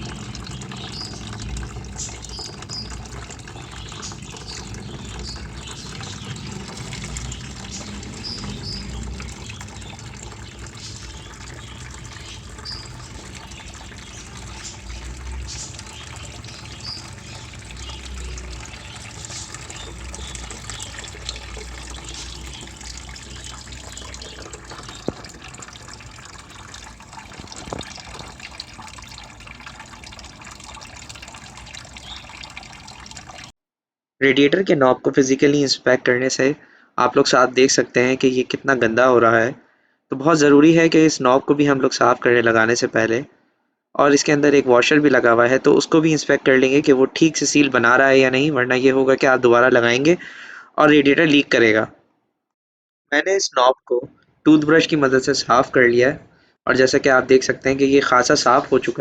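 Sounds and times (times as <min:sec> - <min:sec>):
coolant draining into tub: 0:00.0 - 0:33.6, 0:57.5 - 0:59.0.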